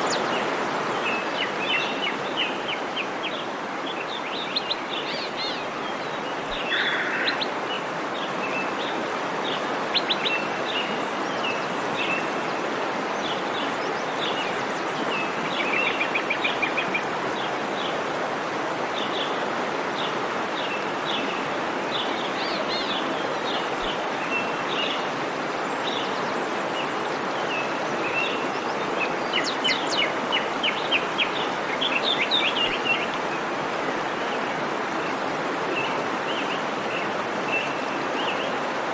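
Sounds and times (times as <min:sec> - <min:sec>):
birds chirping: 0:00.0 - 0:16.8
waterfall rushing: 0:00.0 - 0:38.9.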